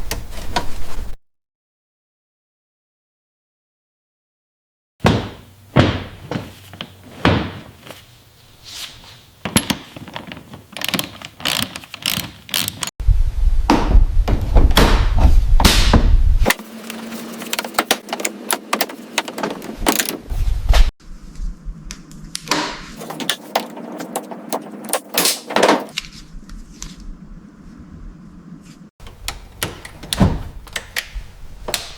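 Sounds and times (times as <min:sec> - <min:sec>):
workshop knocks and clunks: 0:05.0 - 0:08.0, 0:16.8 - 0:20.3, 0:22.5 - 0:26.0, 0:29.0 - 0:30.7.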